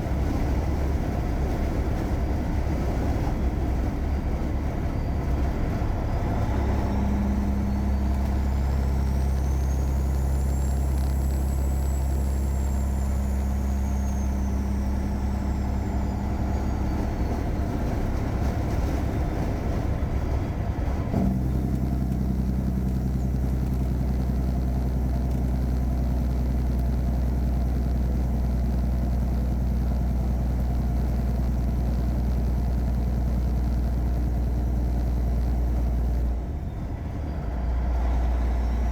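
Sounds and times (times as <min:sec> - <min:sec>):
truck diesel engine droning: 0:00.0 - 0:38.9
faint high whine: 0:06.0 - 0:18.1.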